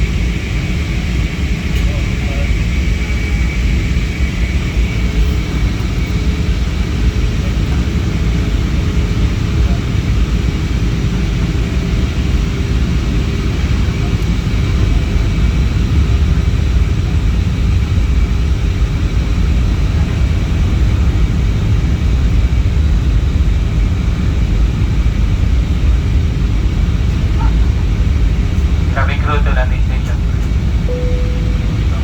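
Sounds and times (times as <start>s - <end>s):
airliner low rumble: 0.0s - 32.0s
faint whining tones: 30.9s - 32.0s.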